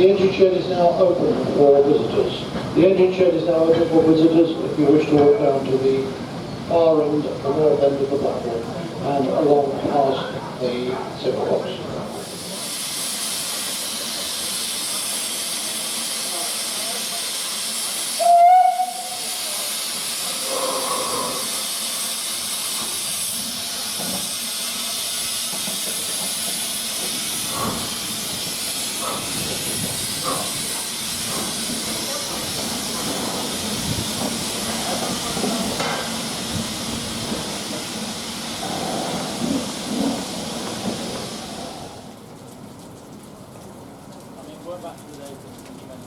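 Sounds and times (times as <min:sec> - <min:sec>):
steam locomotive hissing: 0:11.7 - 0:42.2
locomotive whistle: 0:18.1 - 0:19.5.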